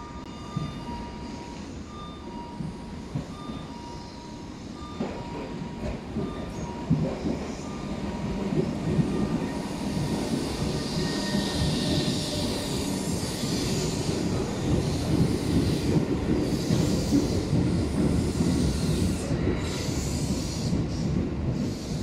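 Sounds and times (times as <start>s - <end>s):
electric train pulling in: 0.0s - 22.0s.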